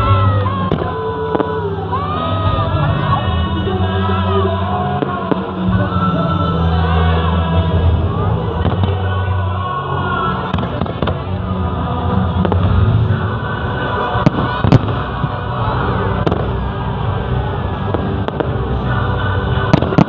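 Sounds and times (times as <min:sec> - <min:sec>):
crowd voices: 0:00.0 - 0:20.0
music: 0:00.0 - 0:20.0
fireworks bursting with sharp bangs: 0:00.6 - 0:01.7, 0:07.8 - 0:09.2, 0:10.4 - 0:20.0.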